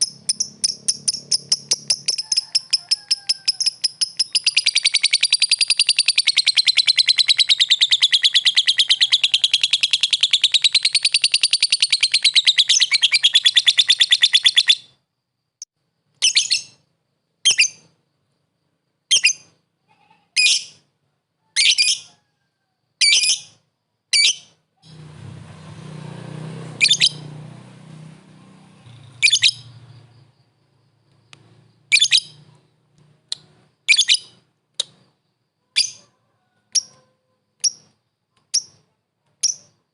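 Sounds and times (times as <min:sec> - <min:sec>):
lovebird chattering and calling: 0:00.0 - 0:15.0, 0:19.1 - 0:20.9, 0:21.6 - 0:22.1, 0:26.8 - 0:27.2, 0:28.8 - 0:30.3, 0:31.6 - 0:32.7, 0:33.3 - 0:35.1, 0:35.8 - 0:36.1, 0:36.7 - 0:39.8.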